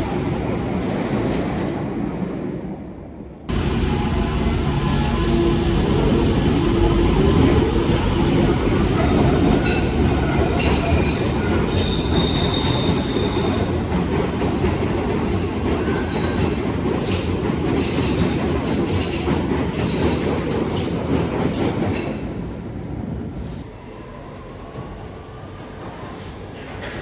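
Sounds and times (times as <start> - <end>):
train rumbling on rails: 0.0 - 27.0
wheel squeal: 7.4 - 13.6.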